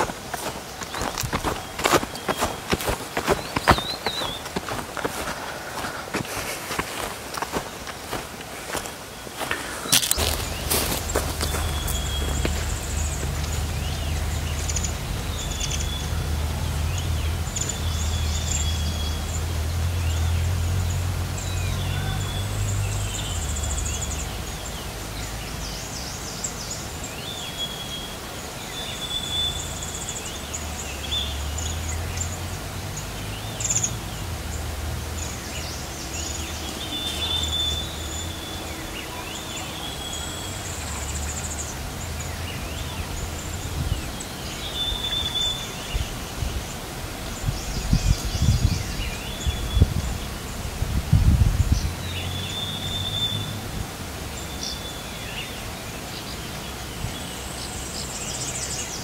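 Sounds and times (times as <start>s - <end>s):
birds whistling and chirping: 0.0s - 5.9s, 9.4s - 19.4s, 36.1s - 41.6s, 43.9s - 46.1s, 52.0s - 53.6s.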